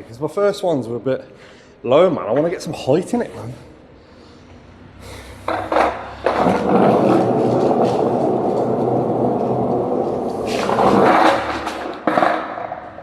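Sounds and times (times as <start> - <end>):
skateboard wheels rolling on pavement: 5.2 - 13.0
skateboard deck knocks: 5.5 - 12.8.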